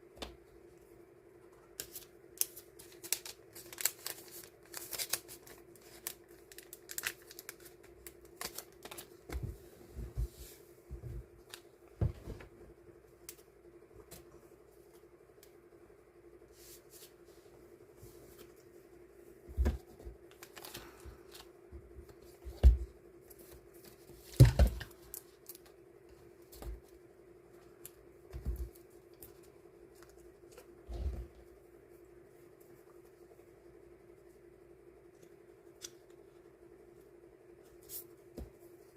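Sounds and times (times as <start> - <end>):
paper and plastic rustling: 1.8 - 9.6, 19.6 - 21.5.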